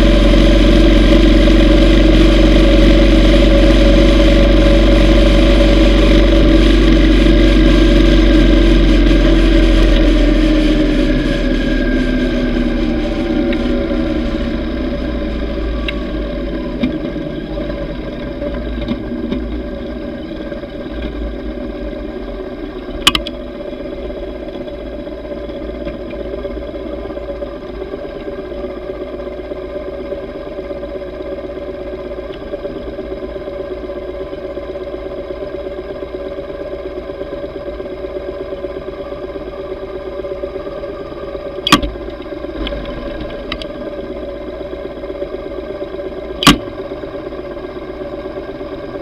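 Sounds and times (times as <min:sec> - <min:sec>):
motorcycle engine cruising: 0:00.0 - 0:49.0
sharp click: 0:41.6 - 0:41.9, 0:46.4 - 0:46.7.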